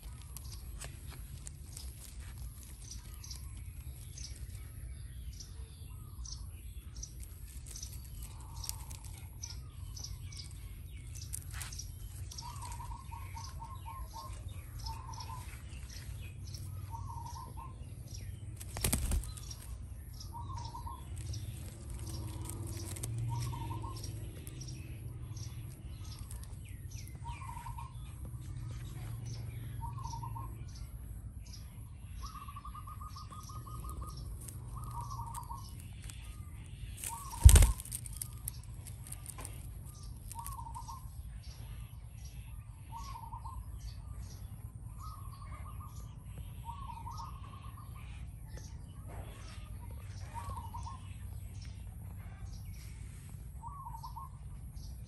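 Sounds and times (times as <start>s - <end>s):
bird trills: 0.0s - 28.6s, 31.5s - 44.0s.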